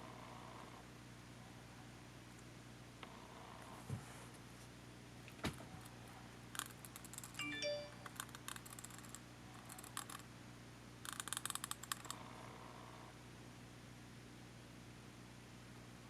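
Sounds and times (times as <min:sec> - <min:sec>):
rapid clicks: 0:06.5 - 0:10.2, 0:11.0 - 0:12.2
brief ringing tones: 0:07.4 - 0:08.1.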